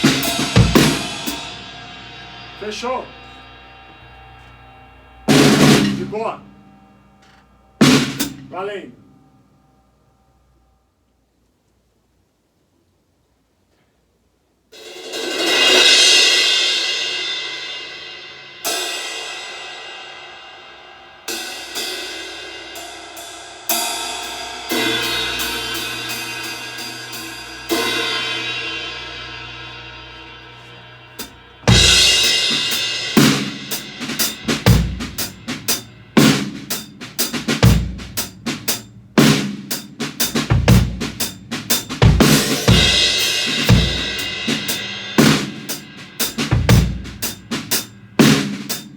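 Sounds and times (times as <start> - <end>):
drum groove: 0.0 - 6.4, 7.2 - 8.9, 23.7 - 48.9
cymbal strikes ringing out: 0.0 - 7.2, 15.1 - 48.9.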